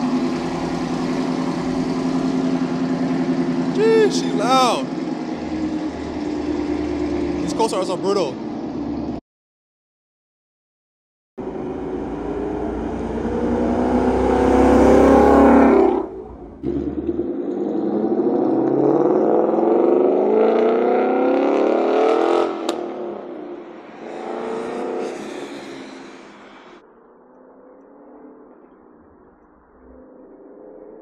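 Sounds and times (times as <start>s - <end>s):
car engine accelerating: 0.0s - 9.2s, 11.4s - 31.0s
exhaust crack: 11.4s - 19.6s.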